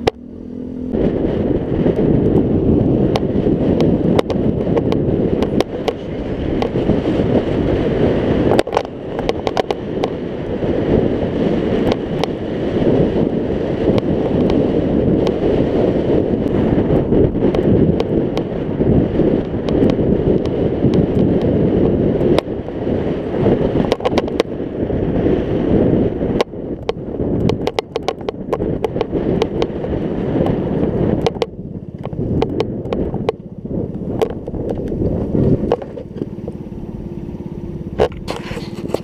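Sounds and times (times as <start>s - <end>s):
wind buffeting microphone: 0.0s - 39.0s
sharp clicks and knocks: 3.1s - 6.8s, 8.5s - 10.2s, 23.8s - 24.5s, 26.4s - 30.6s, 31.2s - 33.4s, 34.0s - 36.3s.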